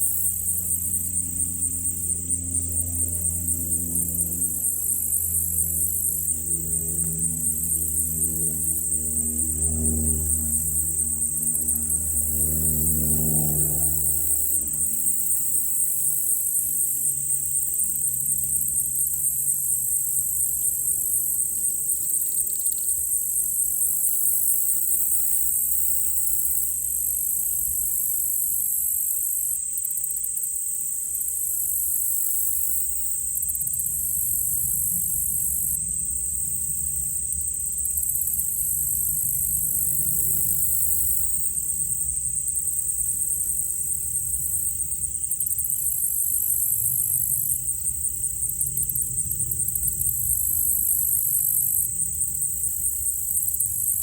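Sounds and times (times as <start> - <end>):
insects trilling: 0.0 - 54.0
propeller plane engine drone: 0.0 - 54.0.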